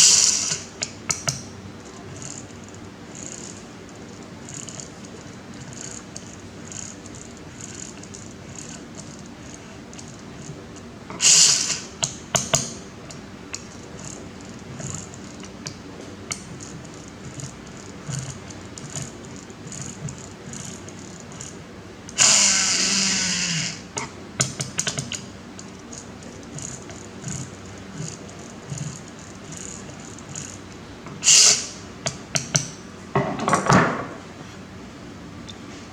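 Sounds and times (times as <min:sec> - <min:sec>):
loud hissing bursts: 0:11.2 - 0:11.9, 0:22.2 - 0:23.9, 0:31.2 - 0:31.9.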